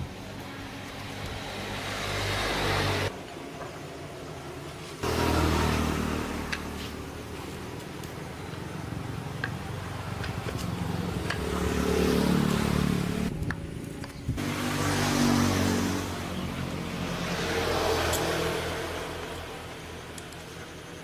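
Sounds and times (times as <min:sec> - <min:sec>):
small motorcycle engine revving: 0:05.0 - 0:07.5, 0:10.0 - 0:13.4, 0:14.4 - 0:19.9.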